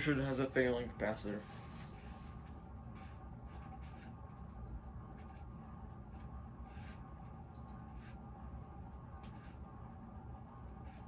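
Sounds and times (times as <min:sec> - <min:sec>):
ceiling fan motor hum: 0:00.0 - 0:11.0
scratchy rubbing sounds: 0:01.2 - 0:04.3.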